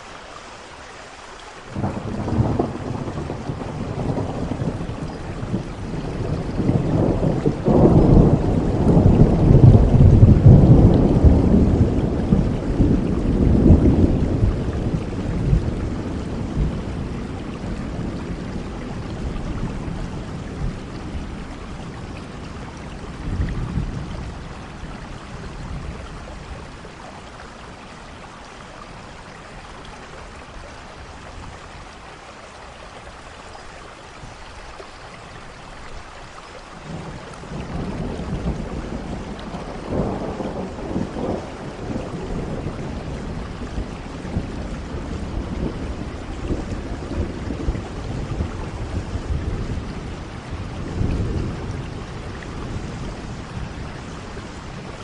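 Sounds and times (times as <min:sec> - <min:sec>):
steady rain: 0:00.0 - 0:55.0
thunder rumbling: 0:01.8 - 0:27.0, 0:36.9 - 0:55.0.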